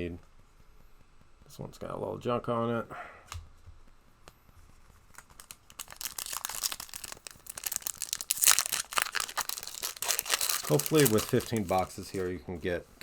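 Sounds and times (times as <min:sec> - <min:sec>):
foil pack tearing and crinkling: 0:05.1 - 0:12.3.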